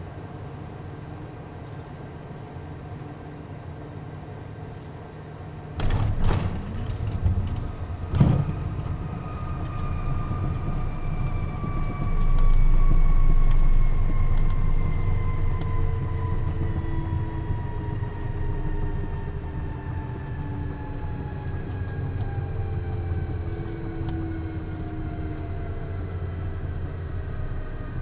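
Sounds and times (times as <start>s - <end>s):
jet engine whine: 0.0s - 28.0s
runway rumble: 5.7s - 12.1s.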